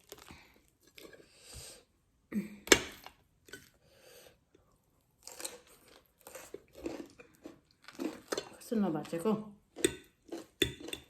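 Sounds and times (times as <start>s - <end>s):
person chewing and smacking: 0.0s - 1.3s, 5.2s - 11.0s.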